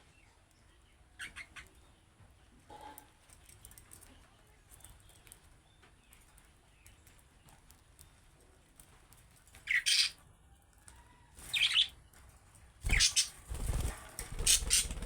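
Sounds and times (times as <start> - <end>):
budgerigars chirping: 12.9 - 13.3, 14.4 - 15.0.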